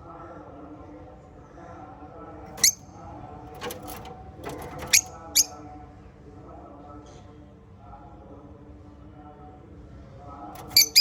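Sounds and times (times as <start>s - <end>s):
parrots chirping: 2.6s - 2.8s, 10.6s - 11.0s.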